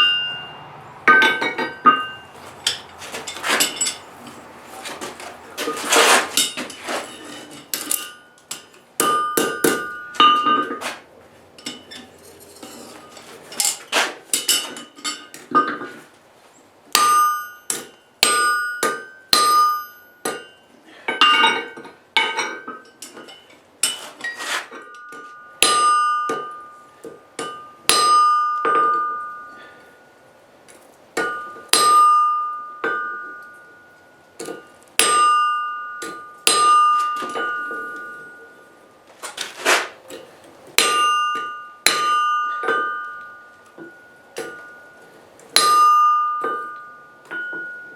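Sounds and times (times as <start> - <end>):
hammer striking steel on anvil: 0.0 - 4.1, 7.7 - 10.8, 16.9 - 24.0, 24.8 - 29.6, 31.2 - 38.6, 40.8 - 47.9.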